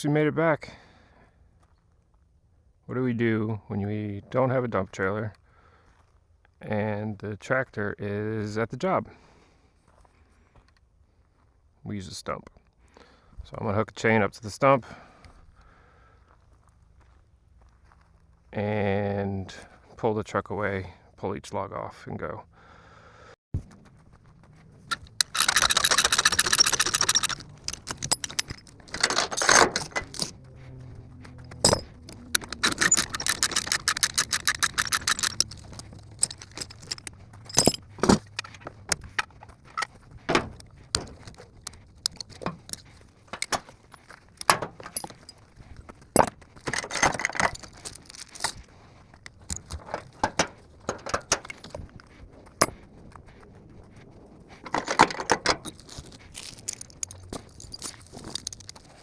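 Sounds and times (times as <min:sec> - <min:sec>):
steel chain rattling: 0:24.9 - 0:45.4, 0:46.1 - 0:48.7, 0:49.4 - 0:51.9, 0:54.6 - 0:59.0.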